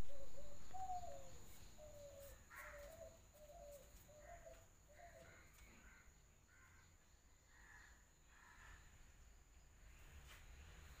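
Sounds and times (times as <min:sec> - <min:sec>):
harsh bird calls: 0:00.0 - 0:06.9.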